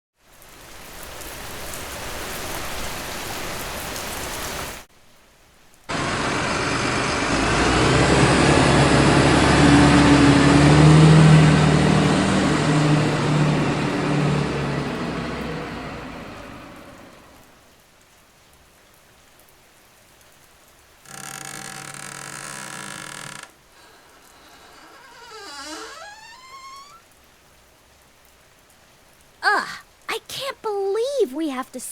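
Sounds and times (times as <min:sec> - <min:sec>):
rain falling: 0:00.2 - 0:31.9
vehicle passing on wet road: 0:05.9 - 0:17.8.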